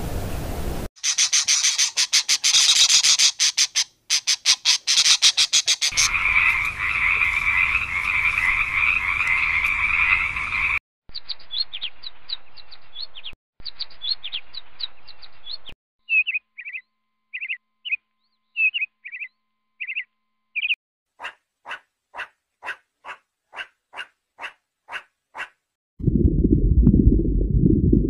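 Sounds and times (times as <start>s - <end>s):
chorus of animal calls: 1.0s - 10.8s
bird chirping: 1.0s - 25.5s.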